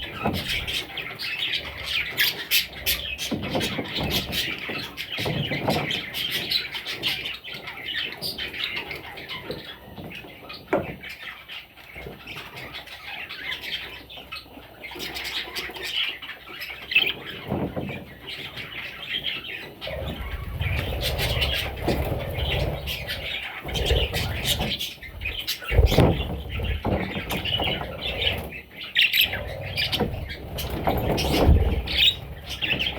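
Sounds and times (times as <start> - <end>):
budgerigars chattering and squawking: 0.0 - 32.9.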